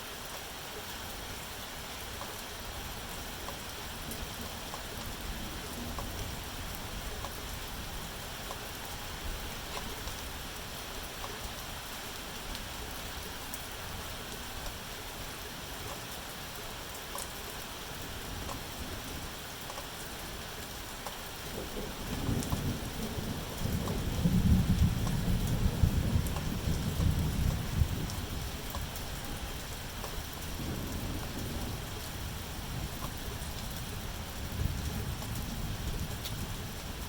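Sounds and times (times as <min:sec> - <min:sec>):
steady rain falling: 0:00.0 - 0:37.0
low rumble of thunder: 0:21.4 - 0:37.0.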